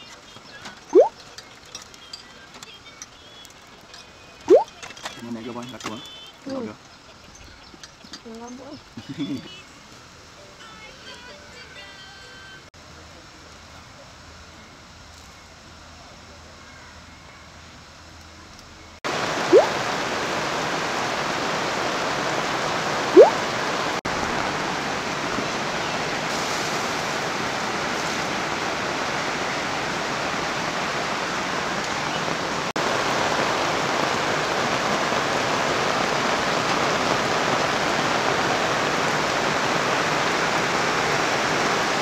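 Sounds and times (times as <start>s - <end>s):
rain: 0.0s - 11.3s, 12.7s - 42.0s
river flowing: 0.9s - 1.3s, 4.4s - 4.7s, 19.1s - 42.0s.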